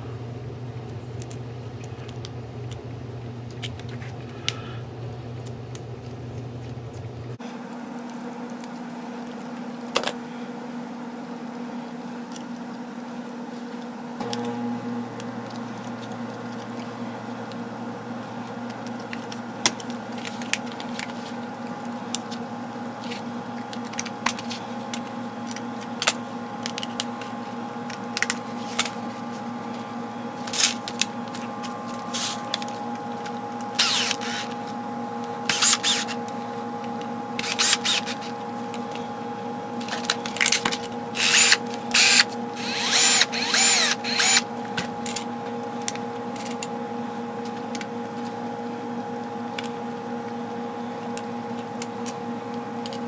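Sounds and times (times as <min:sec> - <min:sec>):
background hum: 0:00.0 - 0:53.0.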